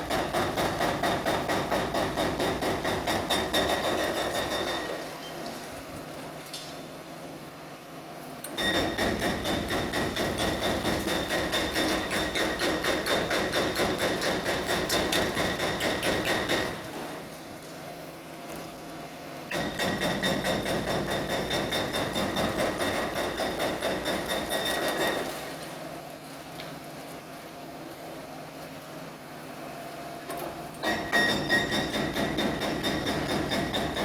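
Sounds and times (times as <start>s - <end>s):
hydraulic breaker pounding concrete: 0.0s - 5.1s, 8.6s - 17.3s, 19.5s - 25.6s, 30.4s - 34.0s.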